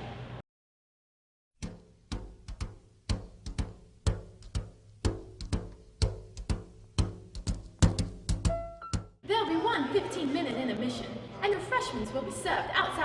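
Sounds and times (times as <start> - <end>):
drum kit beat: 1.6 - 9.2.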